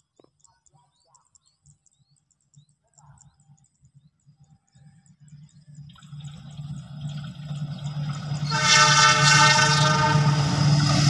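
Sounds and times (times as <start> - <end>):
train rumbling and rushing: 6.0 - 11.0
locomotive horn: 7.2 - 11.0.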